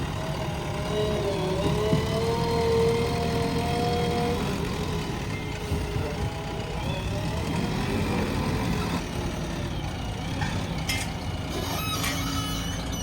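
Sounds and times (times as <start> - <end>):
diesel engine running: 0.0 - 13.0
short squeaks and clicks: 10.4 - 13.0.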